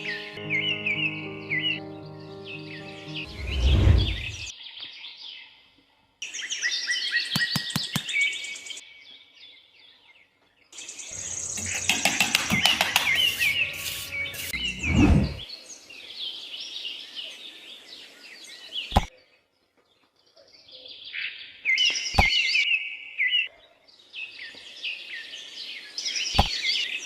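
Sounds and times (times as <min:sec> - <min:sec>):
small birds chirping: 0:06.2 - 0:27.0.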